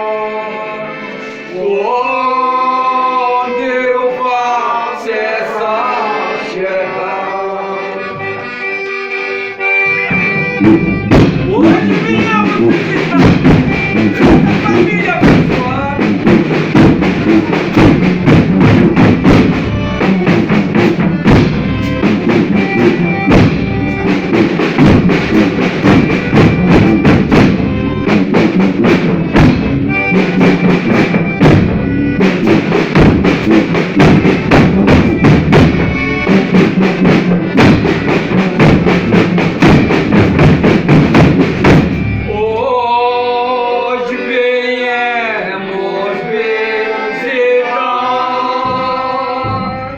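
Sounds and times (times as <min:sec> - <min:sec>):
person singing: 0:00.0 - 0:08.5, 0:10.6 - 0:16.1, 0:42.2 - 0:49.9
folk group playing instruments: 0:00.0 - 0:49.9
drum beating: 0:08.0 - 0:42.7, 0:48.4 - 0:49.9.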